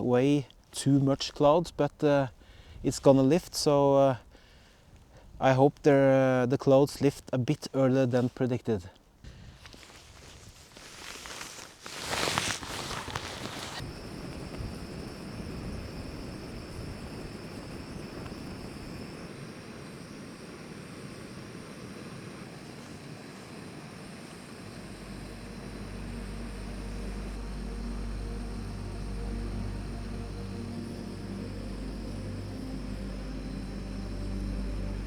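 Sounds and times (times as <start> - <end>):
strong wind on microphone: 13.8 - 25.7
low drone with held tones: 23.8 - 35.0.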